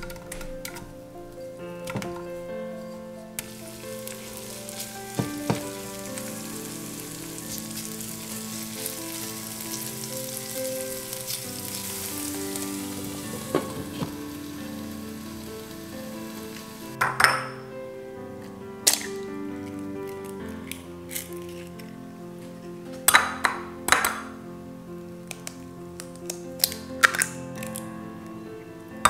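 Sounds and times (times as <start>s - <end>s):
potato frying in oil: 3.4s - 17.0s.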